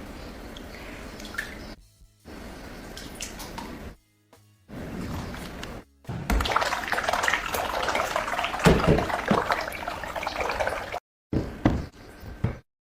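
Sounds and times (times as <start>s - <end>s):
water running and splashing: 6.1s - 11.0s.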